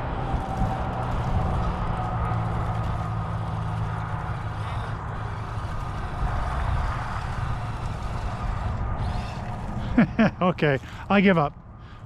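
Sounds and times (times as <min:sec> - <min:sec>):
electric motor and gear drive running: 0:00.0 - 0:11.8.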